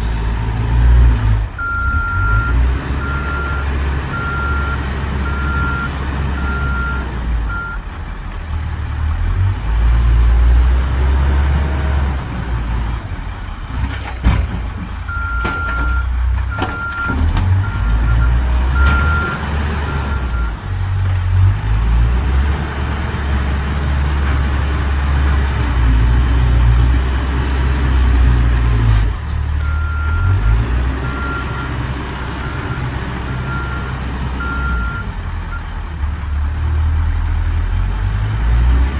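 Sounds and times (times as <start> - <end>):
diesel engine working under load: 0.0 - 38.9
reversing alarm beeping: 1.6 - 7.8.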